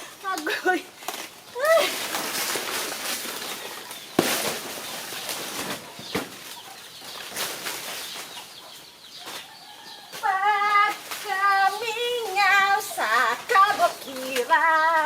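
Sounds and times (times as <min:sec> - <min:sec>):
banana leaves rustling and scraping: 0:00.0 - 0:15.0.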